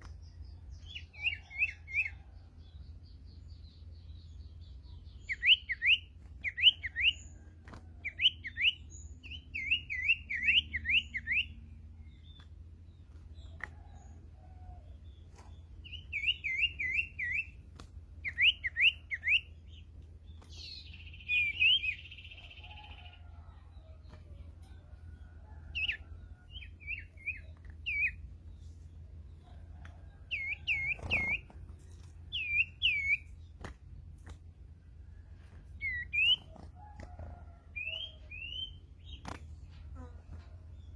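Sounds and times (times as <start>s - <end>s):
bird whistling looping notes: 18.2s - 19.5s, 32.3s - 33.3s.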